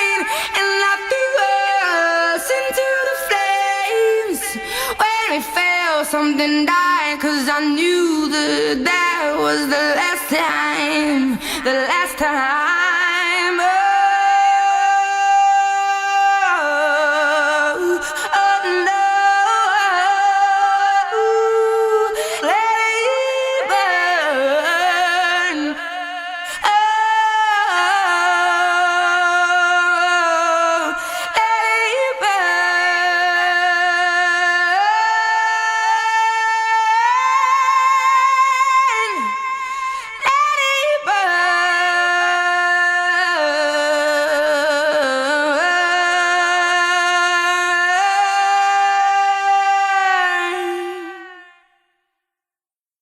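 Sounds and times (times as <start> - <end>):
a cappella voices singing in harmony: 0.0 - 51.7.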